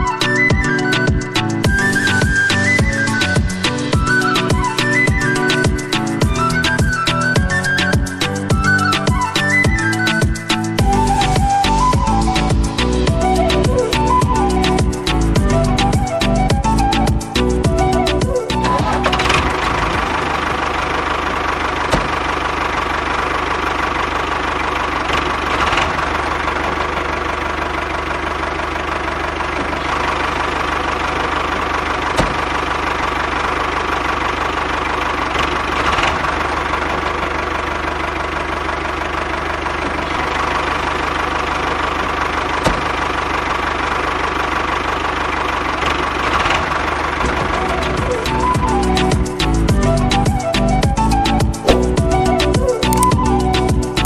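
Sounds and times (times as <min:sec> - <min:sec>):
sharp clicks: 0:52.8 - 0:53.2.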